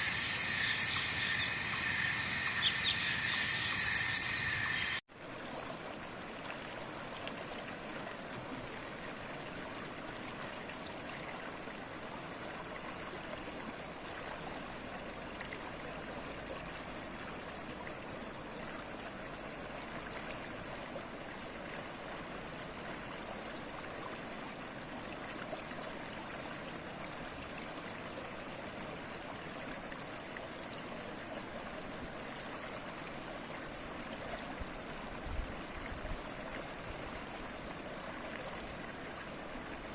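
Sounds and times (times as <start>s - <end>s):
stream water flowing and trickling: 0.0s - 39.9s.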